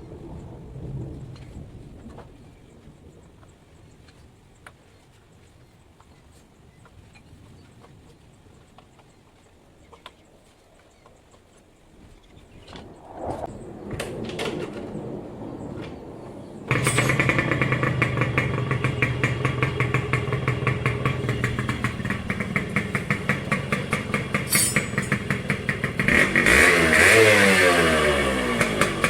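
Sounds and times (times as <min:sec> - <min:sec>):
two-stroke motorcycle engine: 0:16.7 - 0:29.0.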